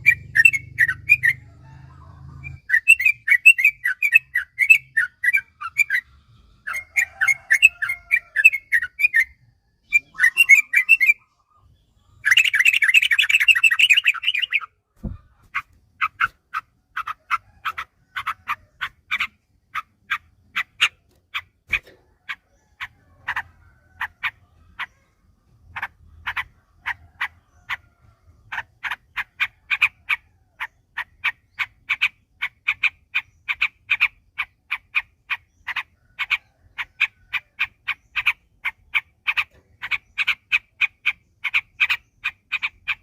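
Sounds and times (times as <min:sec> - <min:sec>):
bulbul song: 0:00.0 - 0:01.5, 0:02.4 - 0:06.1, 0:06.7 - 0:25.1.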